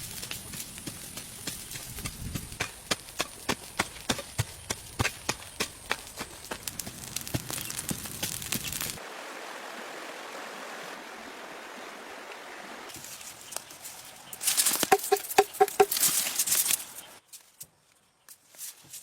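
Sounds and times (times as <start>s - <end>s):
steady hiss: 0.0s - 9.4s, 12.9s - 17.2s.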